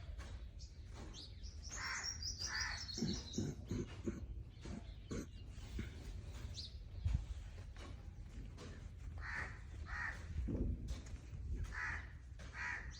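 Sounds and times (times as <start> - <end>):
harsh caw-like bird calls: 1.7 - 6.0, 9.2 - 10.4, 11.6 - 12.9.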